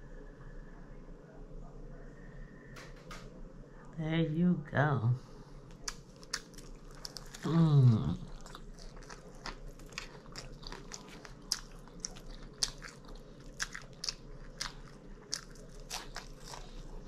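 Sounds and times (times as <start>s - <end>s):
person chewing food: 5.7s - 17.0s.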